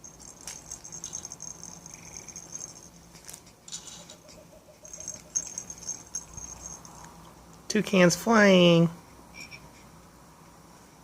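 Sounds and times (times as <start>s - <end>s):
electronic insect chirring: 0.0s - 3.0s, 4.1s - 7.1s
toys rustling and knocking: 0.0s - 7.1s.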